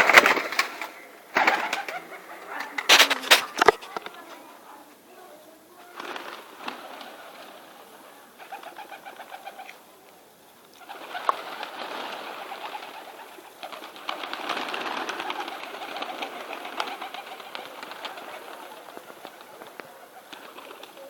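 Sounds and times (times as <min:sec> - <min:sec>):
birds chirping and calling: 0:10.7 - 0:21.0.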